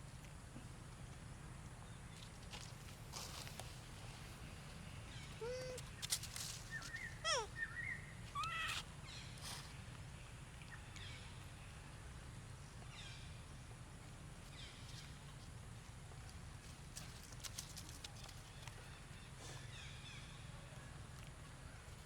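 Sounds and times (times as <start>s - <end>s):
monkeys calling: 7.0s - 8.7s.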